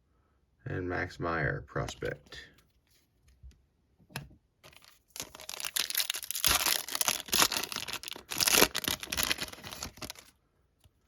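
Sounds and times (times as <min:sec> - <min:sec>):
foil wrapper crinkling and tearing: 0:04.7 - 0:10.3.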